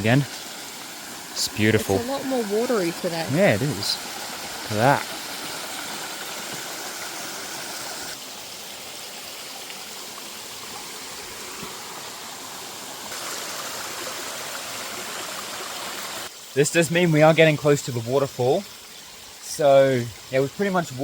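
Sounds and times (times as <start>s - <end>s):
water rushing over rocks: 0.0s - 8.3s, 10.8s - 16.3s.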